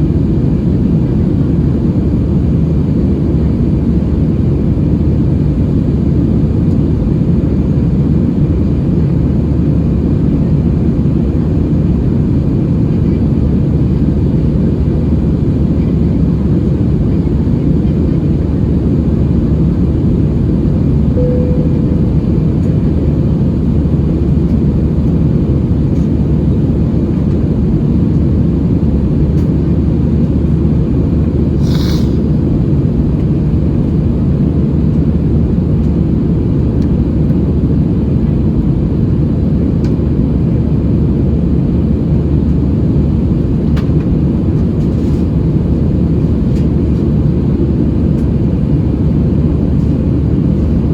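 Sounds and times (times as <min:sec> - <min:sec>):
jet engine cabin rumble: 0:00.0 - 0:50.9
brief hiss: 0:31.6 - 0:32.3.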